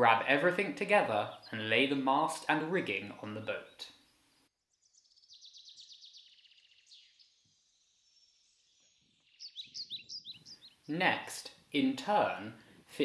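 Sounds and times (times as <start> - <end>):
songbird trilling: 1.2 - 1.7, 2.4 - 11.0.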